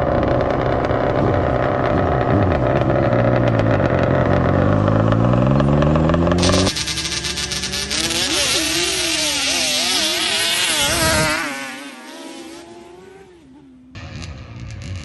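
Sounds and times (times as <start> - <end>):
quad engines revving: 0.0 - 15.0
hissing rush: 6.4 - 11.3.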